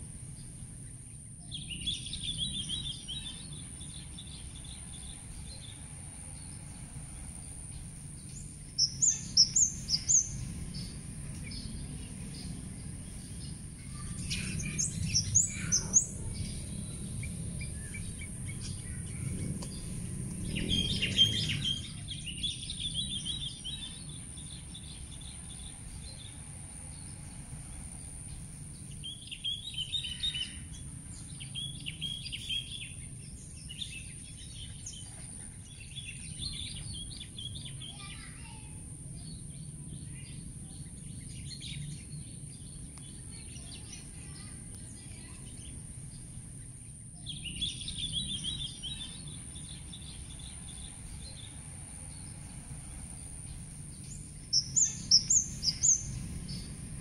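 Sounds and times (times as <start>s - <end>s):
low outdoor rumble: 0.0s - 57.0s
songbirds chirping: 0.0s - 57.0s
steady high-pitched hiss: 0.0s - 57.0s.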